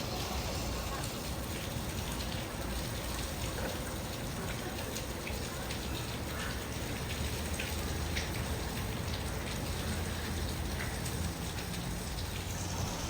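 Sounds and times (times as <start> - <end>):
falling water hissing: 0.0 - 3.5, 9.9 - 13.0
small drip-like ticks: 0.0 - 13.0.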